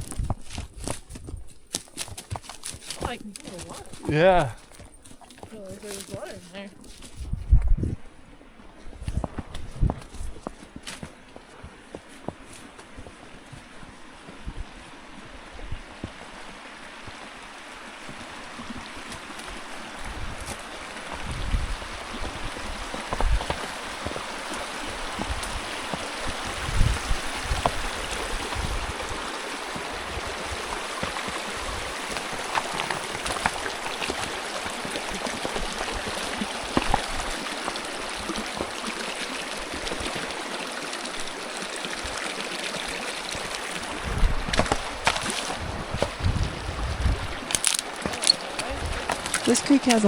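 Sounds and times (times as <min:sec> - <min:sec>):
creek water rushing: 0:01.7 - 0:07.2, 0:10.3 - 0:50.0.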